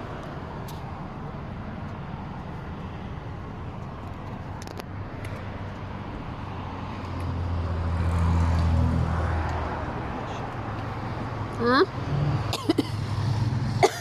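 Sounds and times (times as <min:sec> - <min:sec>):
car passing by: 0:04.6 - 0:13.8.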